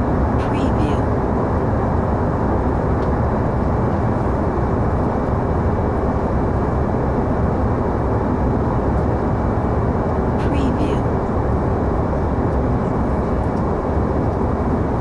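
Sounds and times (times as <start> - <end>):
airplane engine and airflow rush: 0.0 - 15.0.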